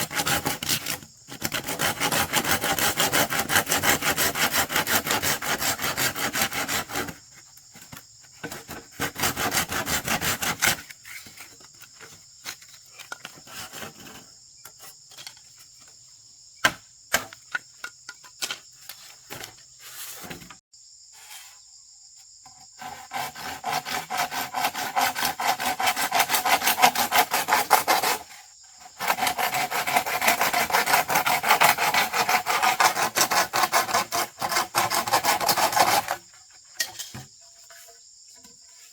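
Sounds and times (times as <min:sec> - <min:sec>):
hand saw cutting wood: 0:00.0 - 0:11.6, 0:12.4 - 0:14.3, 0:22.8 - 0:37.9.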